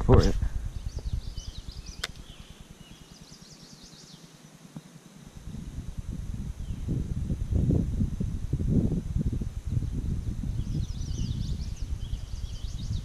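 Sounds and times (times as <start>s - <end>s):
birds chirping and singing: 0.1s - 4.4s, 9.9s - 13.0s
sharp click: 2.0s - 2.3s.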